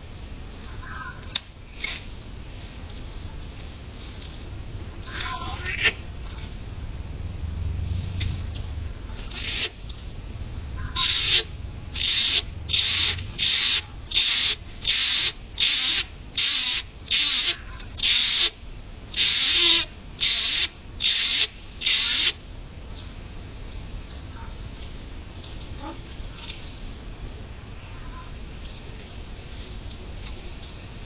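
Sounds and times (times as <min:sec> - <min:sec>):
bird raspy hissing: 0:09.2 - 0:09.8, 0:10.8 - 0:22.4.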